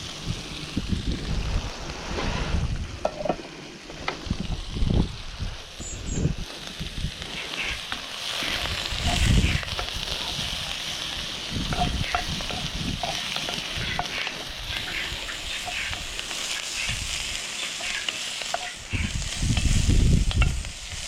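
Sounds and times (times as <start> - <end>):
vegetables sizzling in oil: 0.0 - 2.2, 2.9 - 21.0
low rumble on microphone: 0.0 - 7.3.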